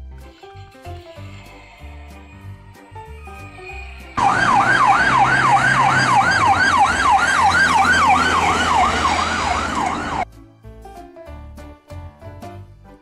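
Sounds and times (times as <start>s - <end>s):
road noise: 4.0s - 10.2s
ambulance siren yelping: 4.2s - 10.2s.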